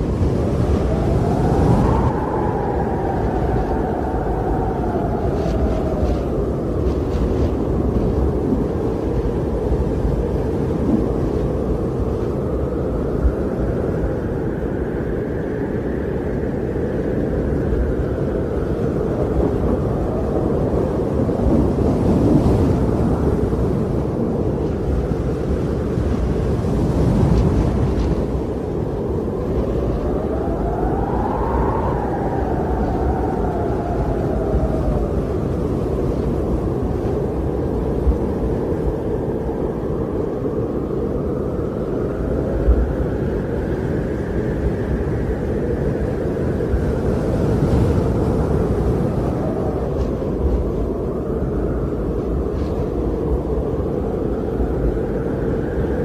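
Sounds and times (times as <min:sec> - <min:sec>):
strong wind rumbling: 0:00.0 - 0:56.0.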